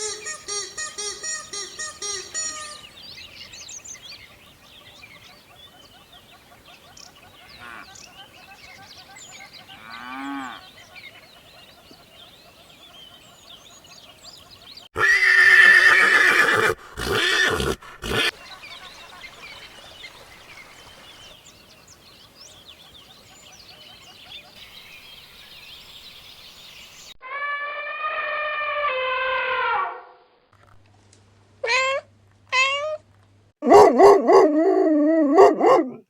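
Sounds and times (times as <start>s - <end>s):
horse whinnying: 15.0s - 18.3s
cat meowing: 31.6s - 33.0s.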